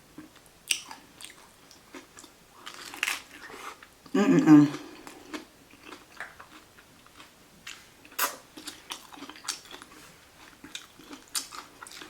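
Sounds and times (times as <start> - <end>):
chewing with crunches: 0.2 - 3.9, 4.6 - 12.0.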